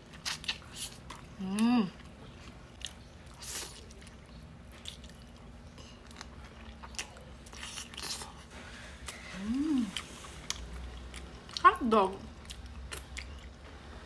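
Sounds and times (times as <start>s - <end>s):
mouth smacking and chewing: 0.0s - 8.4s, 12.3s - 13.7s
person humming mmm: 9.1s - 10.0s.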